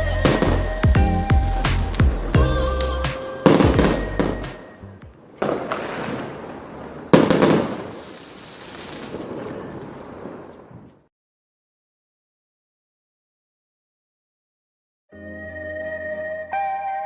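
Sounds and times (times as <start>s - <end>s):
fireworks banging: 0.0s - 10.9s.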